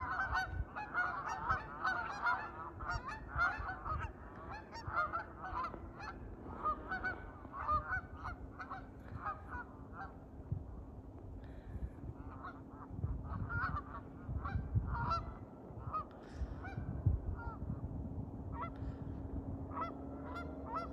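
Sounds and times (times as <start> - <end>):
geese honking: 0.0 - 10.3, 12.2 - 16.8, 18.5 - 19.0, 19.7 - 20.9.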